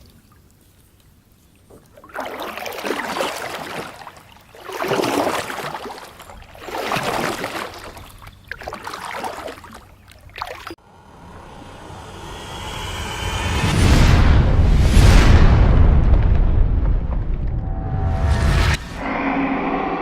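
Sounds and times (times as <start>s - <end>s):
kayak paddle splashing: 0.0s - 10.8s.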